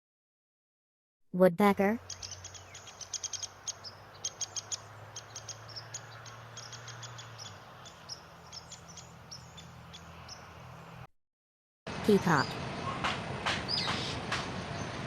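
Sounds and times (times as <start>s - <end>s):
woodpecker calling: 2.0s - 10.8s, 13.6s - 14.3s.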